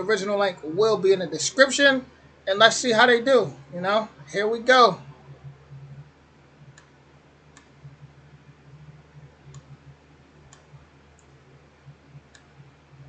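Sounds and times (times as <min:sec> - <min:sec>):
low steady hum: 0:00.0 - 0:13.0
faint clicks: 0:05.3 - 0:08.0.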